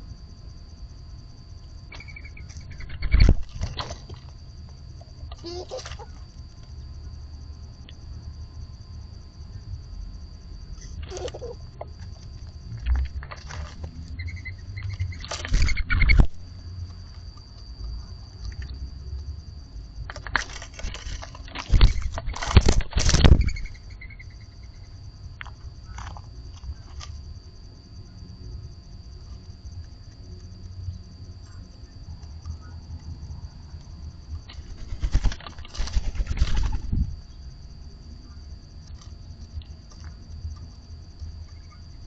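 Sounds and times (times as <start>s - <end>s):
bird pecking and scuffling: 12.1s - 16.3s, 34.4s - 37.1s.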